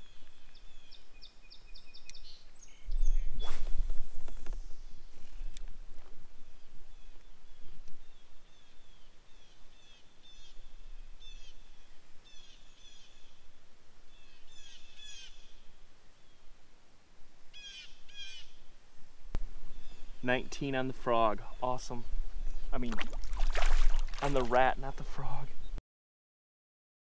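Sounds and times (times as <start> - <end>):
faint outdoor background: 0.0 - 25.8
bird calling: 11.2 - 13.4, 14.1 - 15.6, 17.6 - 18.6.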